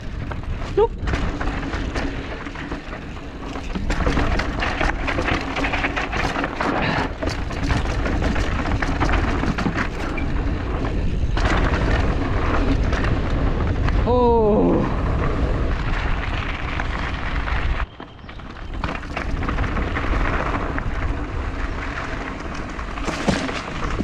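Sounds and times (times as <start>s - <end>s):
bike tyres rattling on rocks: 0.0s - 24.0s
wind rush on microphone: 0.0s - 24.0s.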